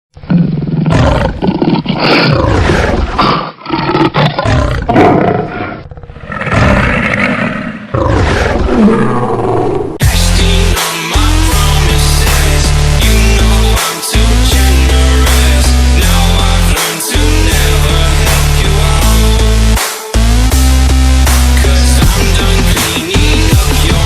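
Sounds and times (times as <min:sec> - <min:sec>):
music with heavy beat: 0:10.0 - 0:24.0.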